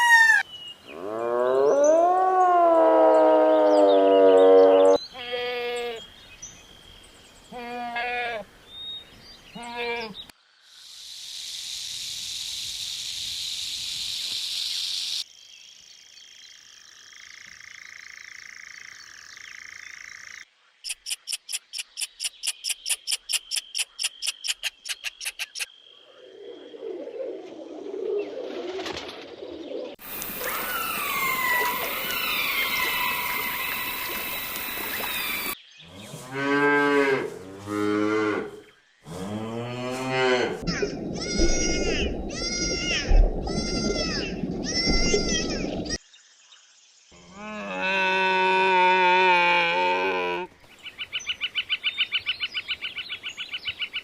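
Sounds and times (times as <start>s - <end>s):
steady high hiss: 10.6s - 15.2s, 30.0s - 35.6s
bird chirps gliding downward: 18.5s - 25.8s, 29.7s - 35.6s
pitched animal calls: 40.4s - 46.0s.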